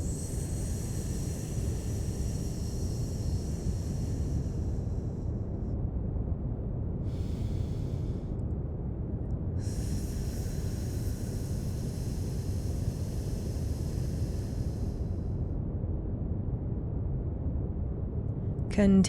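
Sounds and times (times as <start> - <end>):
person exhaling hissing sss: 0.0 - 5.4, 7.0 - 8.3, 9.6 - 15.4.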